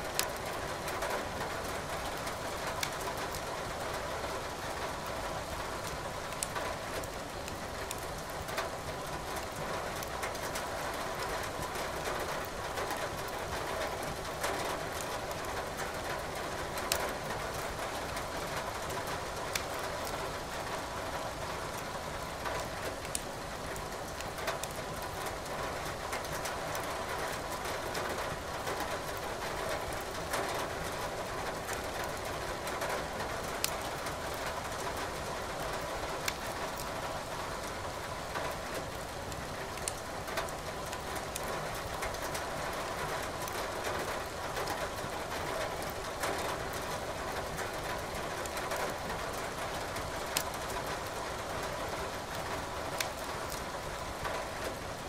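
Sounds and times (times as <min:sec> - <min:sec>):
steady rain hiss: 0:00.0 - 0:55.0
wood fire crackling and popping: 0:07.8 - 0:08.0, 0:23.0 - 0:23.3, 0:24.1 - 0:24.8, 0:39.7 - 0:40.0, 0:50.3 - 0:51.2, 0:53.0 - 0:53.6.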